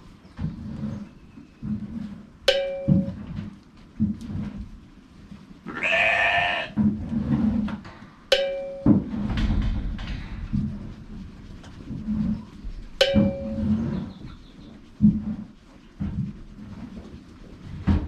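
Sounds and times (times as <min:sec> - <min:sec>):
low thuds: 0:01.6 - 0:05.0, 0:06.7 - 0:18.0
sharp knocks with ringing tone: 0:02.5 - 0:03.4, 0:08.3 - 0:09.3, 0:13.0 - 0:13.8
sheep bleating: 0:05.7 - 0:06.8.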